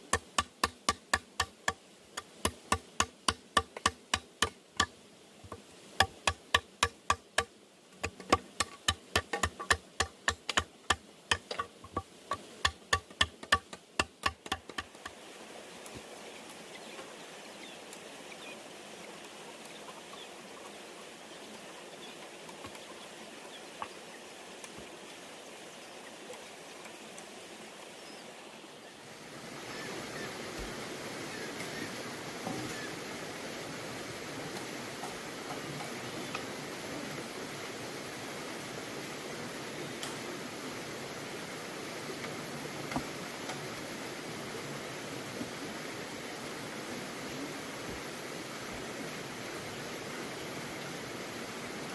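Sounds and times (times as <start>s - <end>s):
tool striking bamboo: 0.1s - 4.9s, 6.0s - 15.1s.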